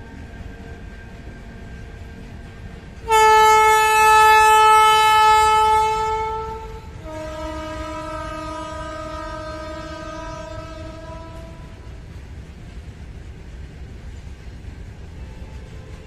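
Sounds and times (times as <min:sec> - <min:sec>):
two-tone locomotive horn: 0:03.0 - 0:12.0, 0:15.2 - 0:16.0.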